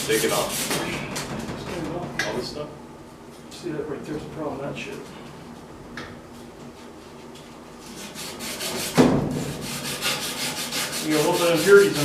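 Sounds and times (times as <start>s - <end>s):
abrasive scrubbing on metal pipe: 7.9s - 12.0s
loud knock: 9.0s - 9.4s.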